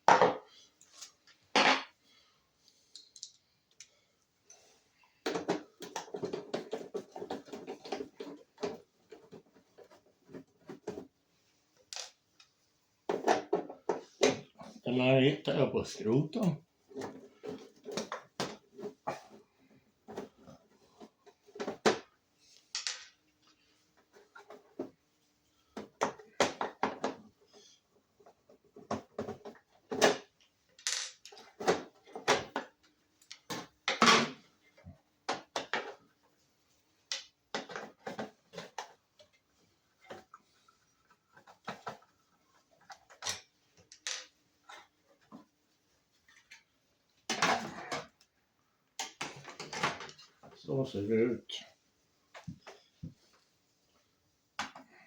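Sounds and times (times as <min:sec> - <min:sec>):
small parts clicking and rattling: 0:02.9 - 0:04.0.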